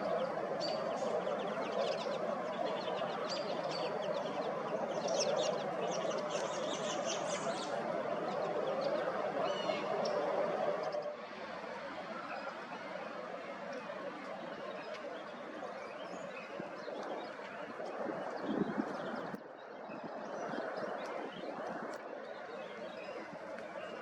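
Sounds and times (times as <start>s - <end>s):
low background noise: 0.0s - 24.0s
songbirds chirping and twittering: 0.0s - 24.0s.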